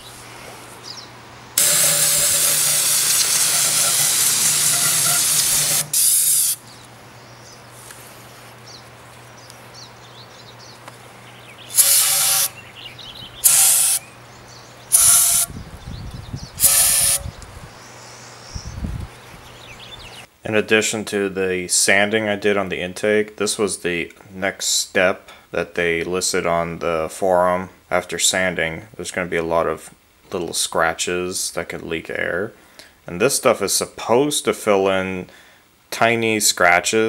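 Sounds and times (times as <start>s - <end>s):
aerosol spray can hissing: 1.6s - 6.6s, 11.7s - 12.5s, 13.4s - 14.0s, 14.9s - 15.5s, 16.6s - 17.2s.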